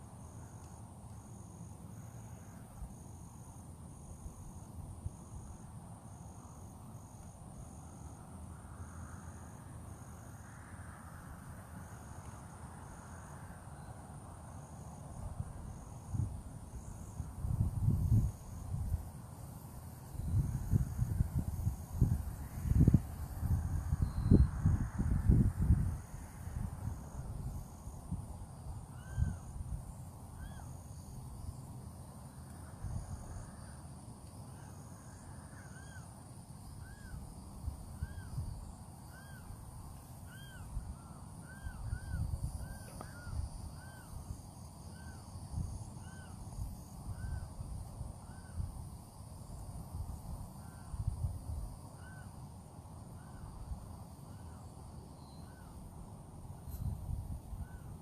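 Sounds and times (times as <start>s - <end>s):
high insect buzz: 0.0s - 58.0s
wind rumbling on microphone: 15.0s - 31.6s, 36.6s - 52.2s, 53.1s - 58.0s.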